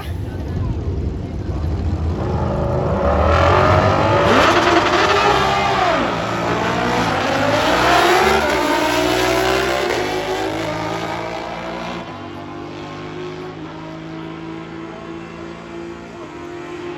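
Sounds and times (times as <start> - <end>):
low engine note: 0.2 - 10.9
motorcycle engines revving hard: 0.8 - 16.9.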